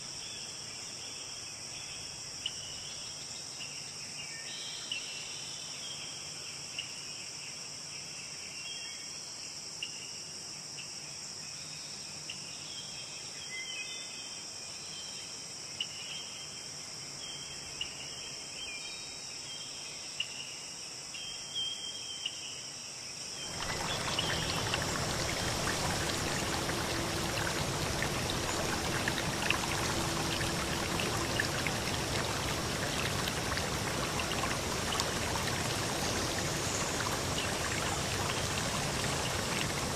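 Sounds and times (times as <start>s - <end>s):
river stream rushing: 23.5s - 39.9s.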